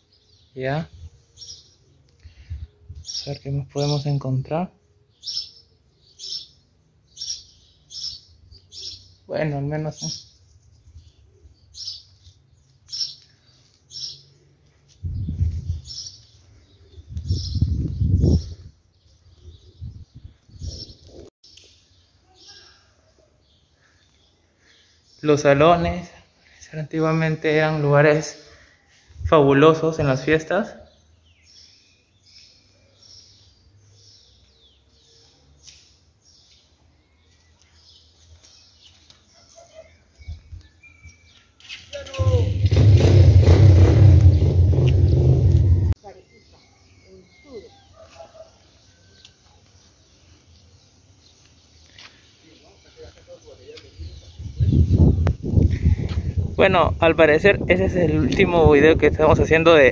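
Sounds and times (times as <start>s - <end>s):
faint birds chirping: 0.0s - 42.7s, 44.3s - 59.9s
high bird chirps: 5.1s - 9.2s
low rumbling noise: 42.2s - 46.0s.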